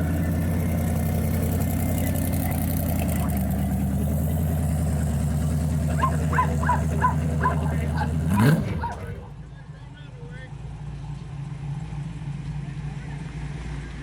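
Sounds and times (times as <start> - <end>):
car engine idling: 0.0 - 9.4
dog barking: 5.9 - 9.3.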